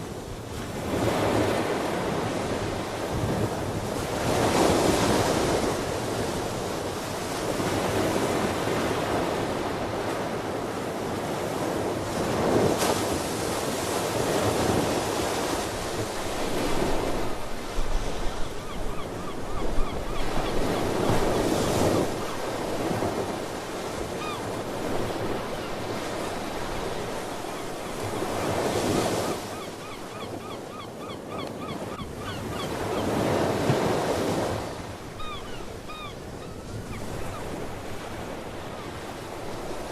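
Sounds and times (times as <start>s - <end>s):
seabirds chirping: 29.4s - 33.4s, 35.2s - 37.6s.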